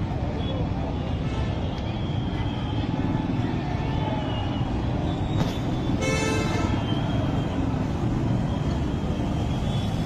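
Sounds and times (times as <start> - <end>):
road traffic rumble: 0.0 - 10.0
vehicle horn: 6.0 - 6.8.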